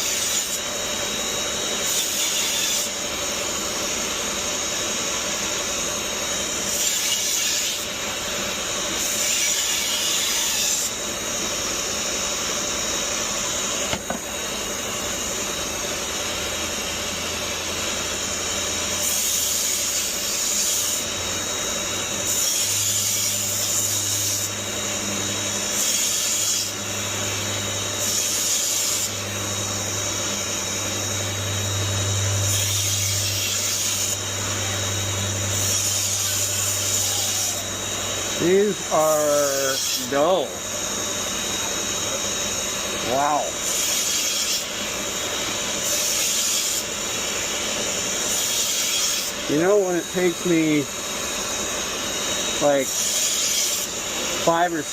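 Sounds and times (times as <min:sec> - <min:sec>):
motorised sharpener running: 0:00.0 - 0:54.9
knife grinding hiss: 0:25.6 - 0:30.8.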